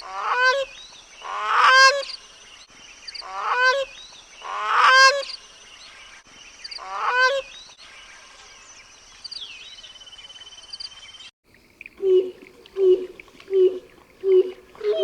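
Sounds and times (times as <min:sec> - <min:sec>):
small birds chirping: 0:08.8 - 0:15.0.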